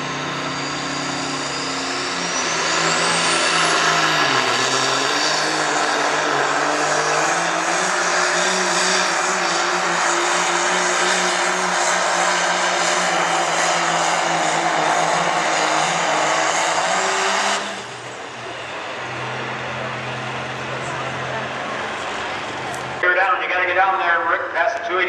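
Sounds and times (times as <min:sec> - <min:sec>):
turbocharger whistle: 0:00.0 - 0:17.9
diesel truck engine at full throttle: 0:00.0 - 0:25.0.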